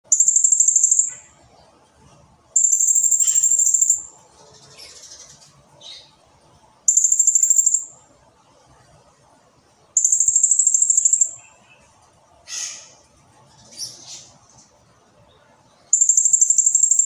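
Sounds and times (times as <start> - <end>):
parrot high-pitched trills: 2.6 - 4.1, 6.9 - 7.9, 10.0 - 11.6, 15.9 - 17.0.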